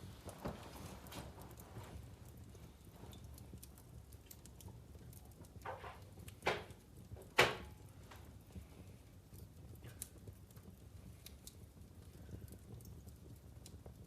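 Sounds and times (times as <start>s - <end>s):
fire popping: 0.0s - 14.0s
logs crackling in fireplace: 0.0s - 14.0s.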